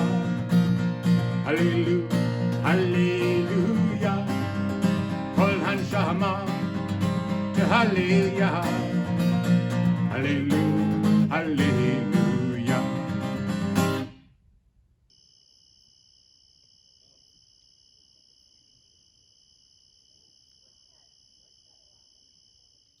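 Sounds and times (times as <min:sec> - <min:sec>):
acoustic guitar band music: 0:00.0 - 0:14.2.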